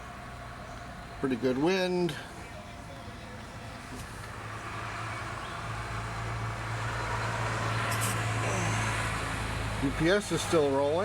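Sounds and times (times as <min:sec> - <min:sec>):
truck engine hum: 0:00.0 - 0:11.0
tyre noise on snowy street: 0:06.9 - 0:09.7.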